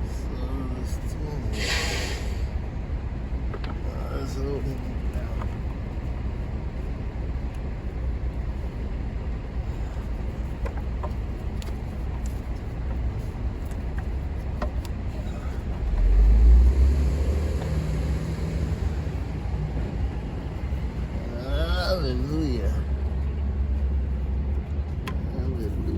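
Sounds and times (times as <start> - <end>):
street traffic rumble: 0.0 - 25.9
heavy vehicle passing: 15.3 - 23.6.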